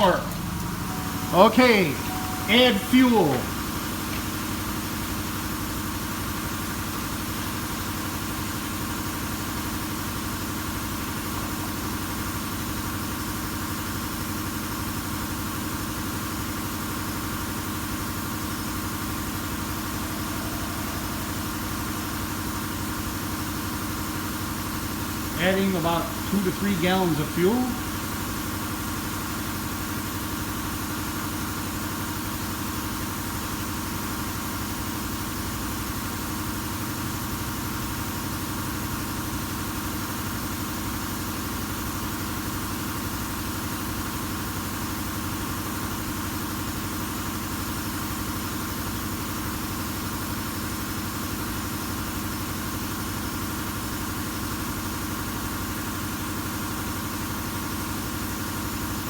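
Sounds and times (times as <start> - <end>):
steady mechanical drone: 0.0 - 4.2.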